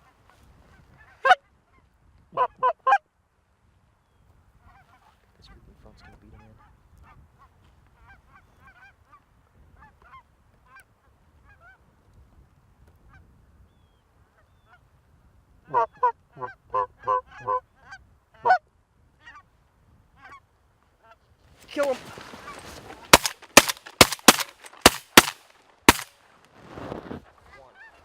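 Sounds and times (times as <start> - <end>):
geese honking: 15.7 - 18.6.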